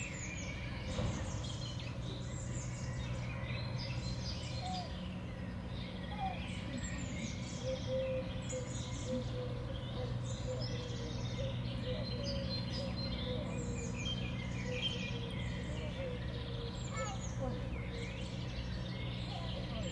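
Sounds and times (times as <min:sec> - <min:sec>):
songbirds chirping: 0:00.0 - 0:19.9.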